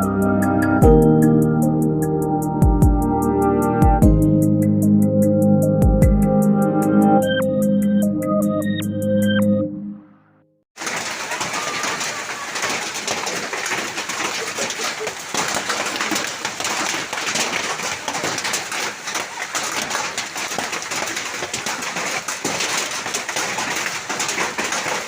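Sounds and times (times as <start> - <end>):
hail and rain pelting down: 10.8 - 25.0.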